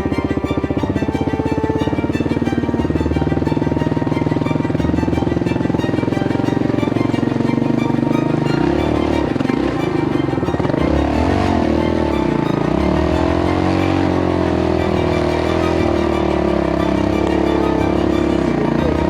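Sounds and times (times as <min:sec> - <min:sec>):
background music: 0:00.0 - 0:19.0
motorcycle engine revving: 0:10.6 - 0:17.4.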